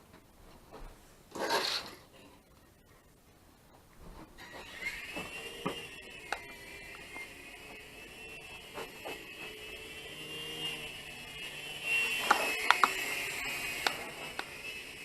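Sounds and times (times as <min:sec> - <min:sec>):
toy helicopter motors whining: 0:04.4 - 0:15.0.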